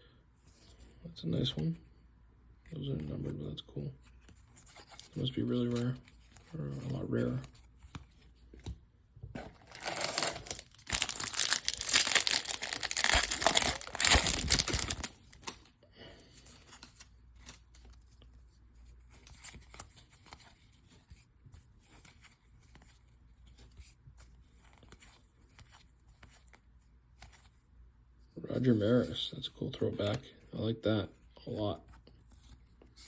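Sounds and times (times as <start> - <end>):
cards rustling: 4.0 - 27.6
wrapper tearing and crinkling: 9.6 - 15.7.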